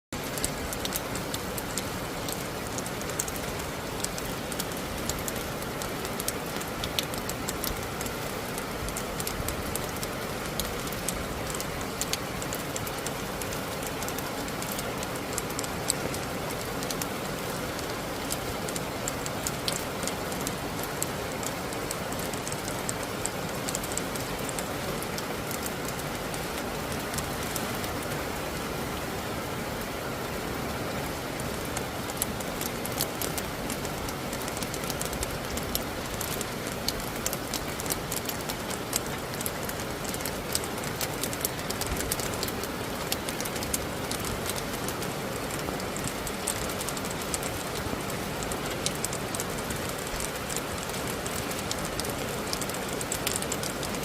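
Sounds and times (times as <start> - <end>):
rain pattering: 0.1 - 54.0.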